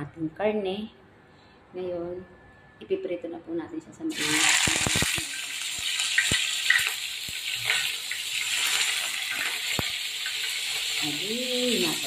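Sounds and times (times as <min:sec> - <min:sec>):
beef sizzling in oil: 0:04.1 - 0:12.0
oil popping and crackling: 0:04.1 - 0:12.0.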